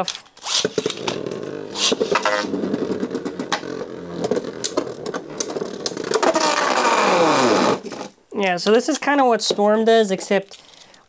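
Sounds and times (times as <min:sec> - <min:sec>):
spinning tops whirring and scraping: 0:00.4 - 0:08.0.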